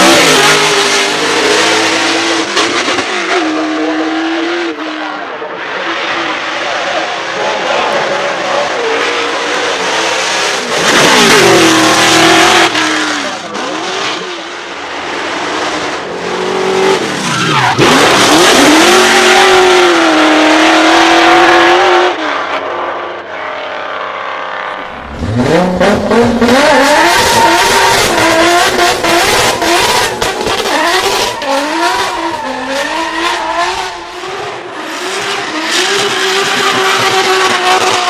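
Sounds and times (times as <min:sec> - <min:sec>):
car engine revving hard: 0:00.0 - 0:22.6, 0:24.6 - 0:38.0
tyres squealing: 0:24.9 - 0:34.3.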